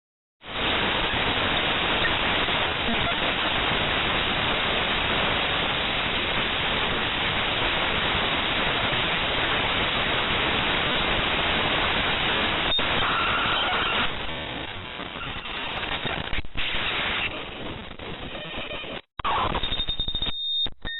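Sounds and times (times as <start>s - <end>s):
dense static hiss: 0.5s - 19.0s
brief steady tone: 12.6s - 14.1s.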